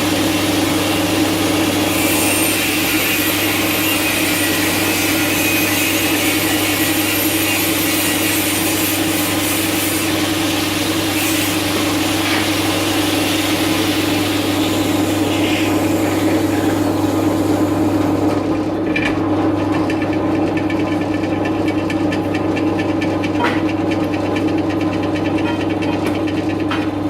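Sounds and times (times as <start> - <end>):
drill cutting hiss: 0.0 - 18.4
drilling machine humming: 0.0 - 27.0.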